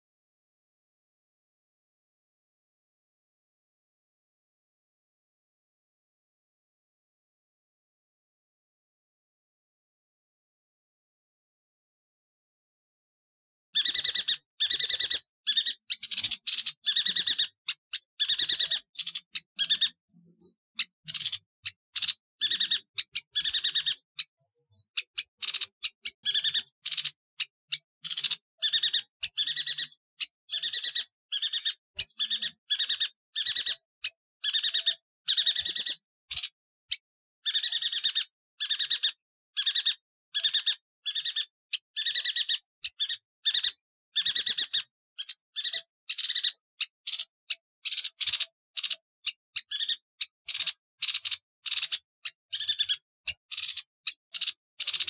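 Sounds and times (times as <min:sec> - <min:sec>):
bird trilled bursts: 0:13.8 - 0:33.8, 0:37.5 - 0:55.0.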